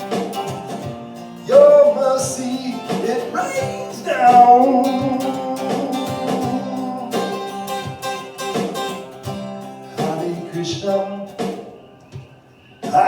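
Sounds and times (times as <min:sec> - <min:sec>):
acoustic guitar strumming chords: 0:00.0 - 0:13.0
person singing: 0:01.5 - 0:07.7.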